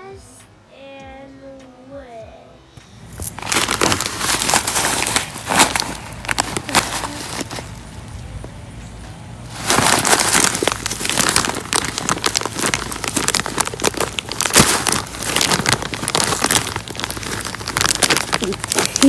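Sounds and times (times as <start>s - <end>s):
bird seed pouring: 3.2s - 8.4s, 9.5s - 19.0s.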